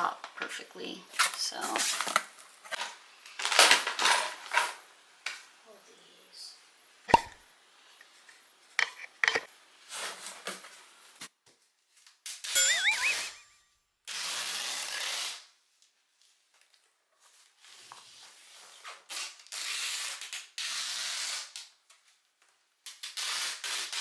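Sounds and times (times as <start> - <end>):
packing tape pulled off roll: 1.1 - 5.4, 14.1 - 16.8, 17.4 - 22.2, 22.8 - 24.0.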